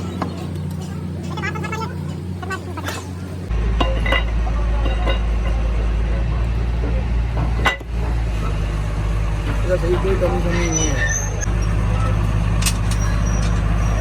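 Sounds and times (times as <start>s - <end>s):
metal tools clinking: 11.1s - 14.0s.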